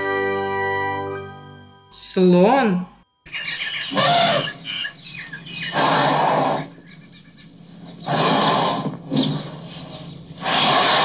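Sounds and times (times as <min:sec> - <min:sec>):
elephant trumpeting: 0:03.3 - 0:09.0, 0:10.4 - 0:11.0.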